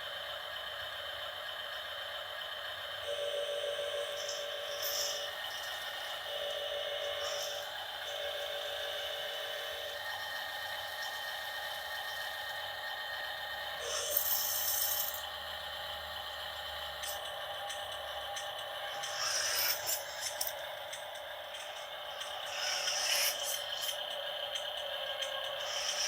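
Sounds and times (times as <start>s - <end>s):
toy truck motor whining: 2.2s - 12.7s, 13.6s - 26.0s
hissing scrape: 19.0s - 20.5s, 22.5s - 23.9s.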